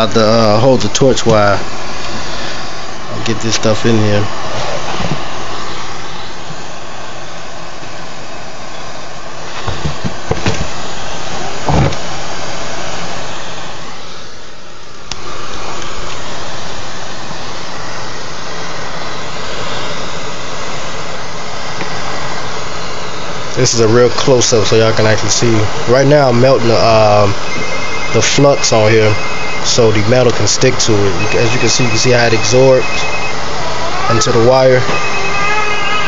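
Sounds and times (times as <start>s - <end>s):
gas torch flame hissing: 15.1s - 32.8s.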